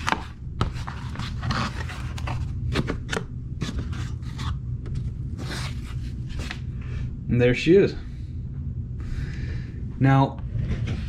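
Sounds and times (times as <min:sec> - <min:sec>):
cardboard box rustling and scraping: 0:00.0 - 0:06.6
steady low hum: 0:00.0 - 0:11.0.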